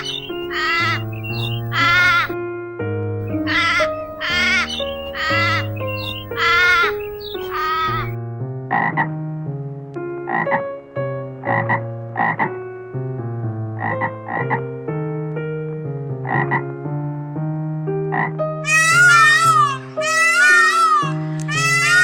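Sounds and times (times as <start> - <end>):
frog croaking: 0.0 - 2.4, 3.2 - 8.2
soft background music: 0.0 - 2.4, 3.2 - 22.0.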